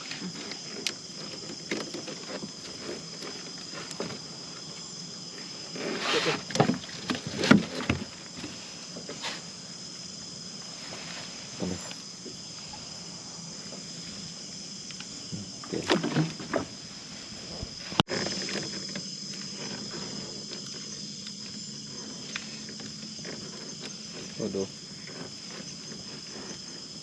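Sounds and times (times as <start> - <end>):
high insect chirr: 0.0 - 27.0.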